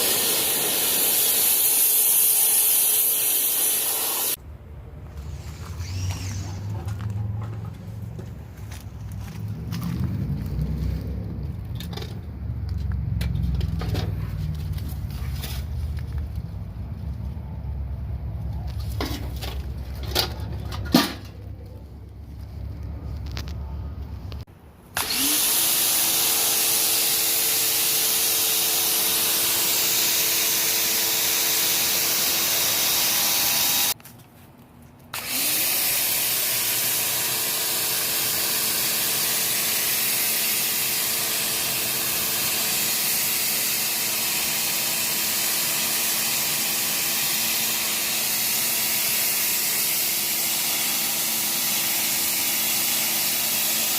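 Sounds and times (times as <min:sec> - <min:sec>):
pressure washer water jet hissing: 0:00.0 - 0:04.4, 0:25.0 - 0:34.0, 0:35.2 - 0:53.9.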